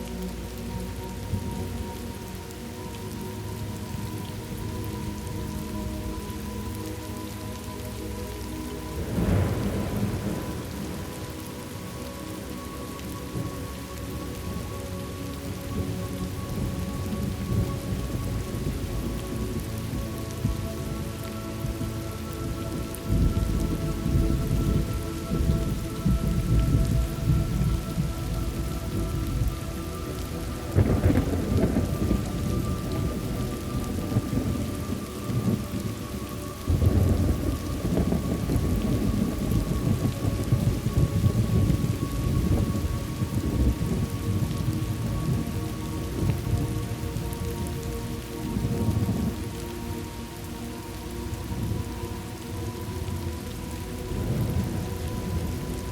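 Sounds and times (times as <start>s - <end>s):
steady rain: 0.0s - 55.9s
rolling thunder: 8.9s - 11.6s, 22.7s - 36.0s, 36.6s - 47.8s
sharp thunderclap: 30.8s - 33.2s.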